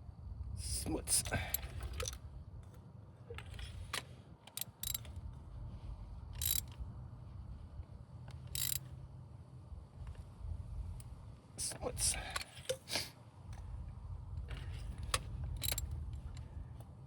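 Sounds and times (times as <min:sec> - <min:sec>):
ratchet wrench clicking: 0:01.2 - 0:02.2, 0:03.4 - 0:05.2, 0:06.3 - 0:06.8, 0:08.3 - 0:08.9, 0:15.1 - 0:16.0.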